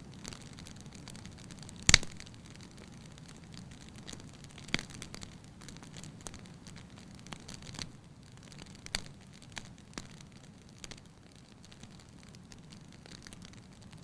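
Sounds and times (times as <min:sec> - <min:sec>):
campfire crackling and popping: 0:00.0 - 0:14.0
low rumble of flame: 0:00.0 - 0:14.0.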